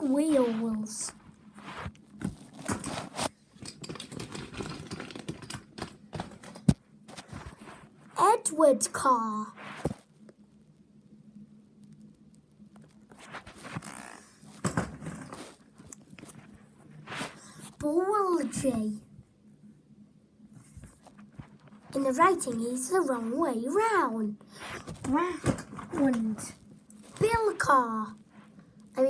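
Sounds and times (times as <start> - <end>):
toy trains clicking and scraping: 2.6 - 7.4.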